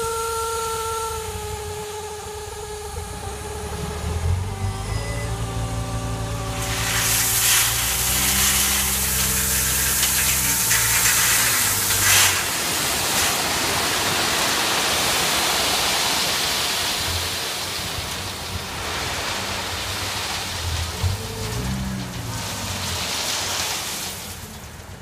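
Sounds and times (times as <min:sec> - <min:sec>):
diesel truck engine running: 0:00.0 - 0:25.0
stone sliding out rushing hiss: 0:06.6 - 0:16.0.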